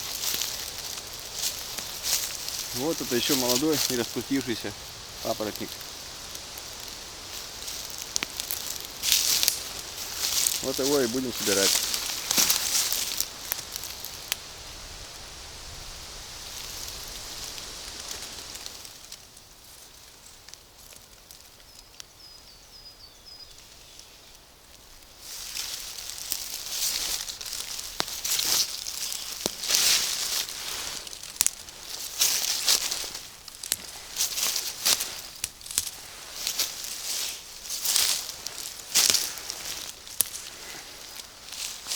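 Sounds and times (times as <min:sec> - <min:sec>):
plant stalks snapping: 0:00.0 - 0:14.4, 0:25.3 - 0:41.9
rustling of leaves and undergrowth: 0:00.0 - 0:41.9
faint bird chirps: 0:21.7 - 0:24.3.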